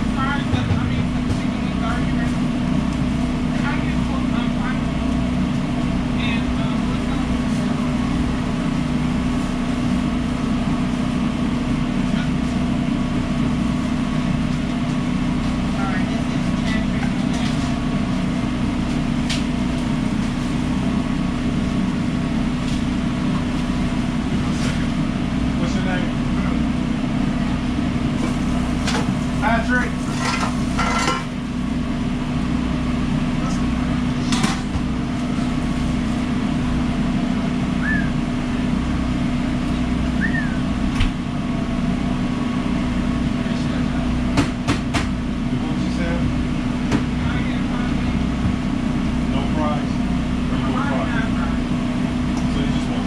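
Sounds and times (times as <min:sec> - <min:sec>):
loud equipment hum: 0:00.0 - 0:53.0
faint kitchen clicks and clatter: 0:29.8 - 0:31.4.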